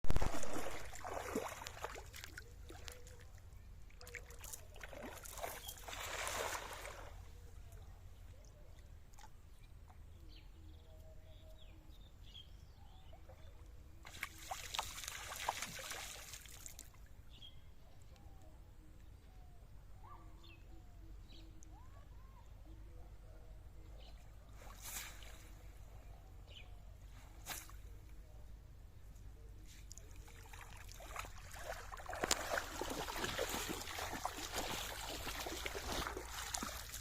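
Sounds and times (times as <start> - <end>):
water splashing: 0.0 - 3.2, 3.9 - 7.2, 14.1 - 16.9, 30.1 - 37.0
faint bird chirps: 17.3 - 30.6.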